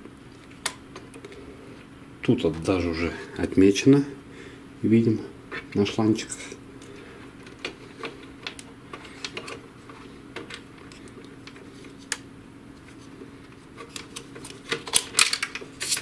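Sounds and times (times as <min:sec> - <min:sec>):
faint steady hum: 0:00.0 - 0:16.0
plastic parts clicking and tapping: 0:07.4 - 0:12.2, 0:13.8 - 0:16.0.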